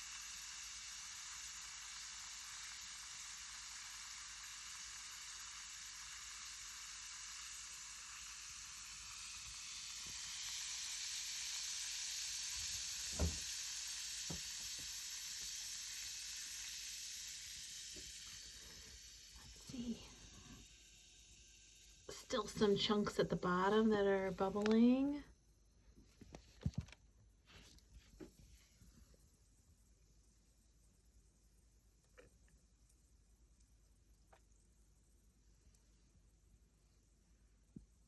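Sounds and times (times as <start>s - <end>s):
bath bomb fizzing in water: 0.0s - 25.3s.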